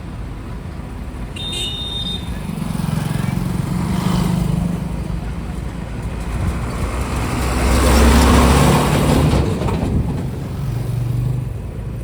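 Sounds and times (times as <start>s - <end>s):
vehicle engine with road rumble: 0.0s - 12.0s
short high beep: 1.4s - 2.4s.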